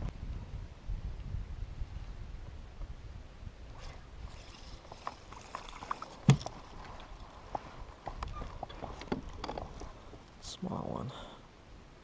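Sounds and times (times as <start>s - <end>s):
fishing gear clicking and knocking: 8.1s - 9.9s.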